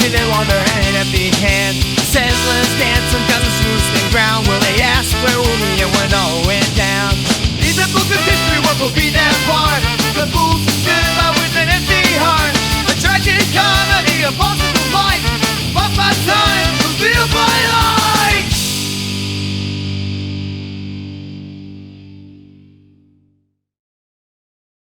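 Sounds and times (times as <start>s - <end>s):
bass and drums: 0.0s - 22.7s
distorted guitar solo: 9.5s - 23.2s
held guitar chord ringing: 18.9s - 23.1s.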